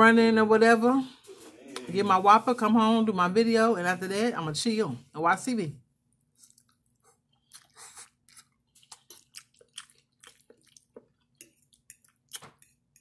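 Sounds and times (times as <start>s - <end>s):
wet chewing and lip smacks: 6.1s - 12.6s.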